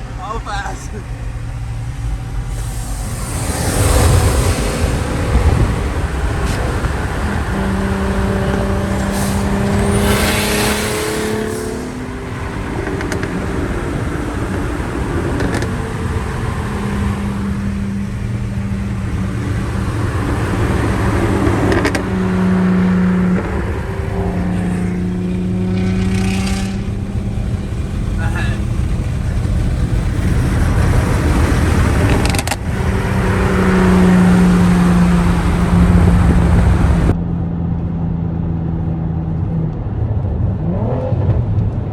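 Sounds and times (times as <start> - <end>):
car engine running: 0.0 - 37.2
low road rumble: 0.0 - 41.9.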